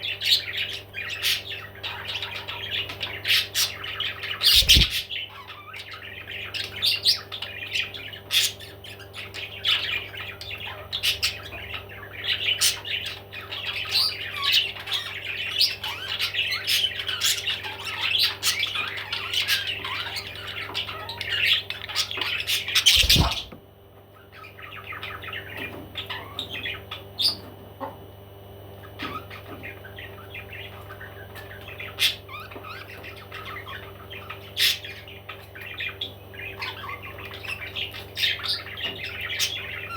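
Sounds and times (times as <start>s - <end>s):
parrots chattering and squawking: 0.0s - 28.1s, 28.8s - 39.9s
steady low hum: 4.1s - 5.2s, 22.6s - 24.0s.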